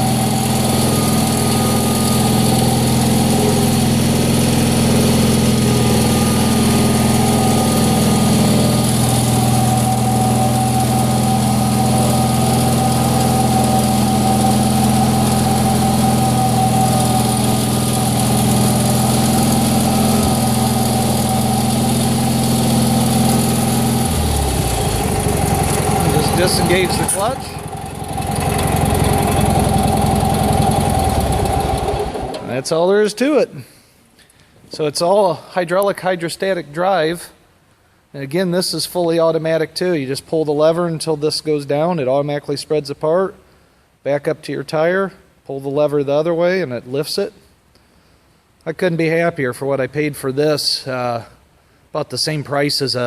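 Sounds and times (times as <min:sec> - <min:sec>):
engine running steadily: 0:00.0 - 0:32.7
steady whine: 0:00.0 - 0:33.4.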